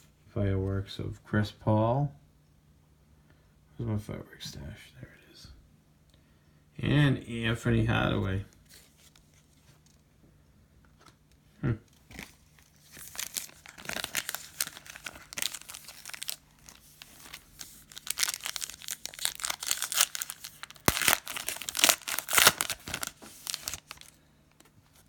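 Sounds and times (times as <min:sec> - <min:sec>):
wrapper tearing and crinkling: 0:12.0 - 0:24.2.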